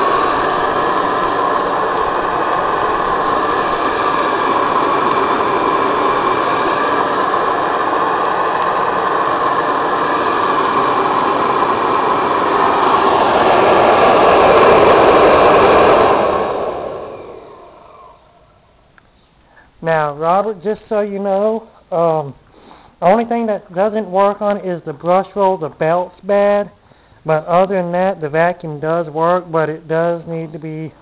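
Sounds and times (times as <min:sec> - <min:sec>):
vacuum cleaner motor running: 0:00.0 - 0:18.7.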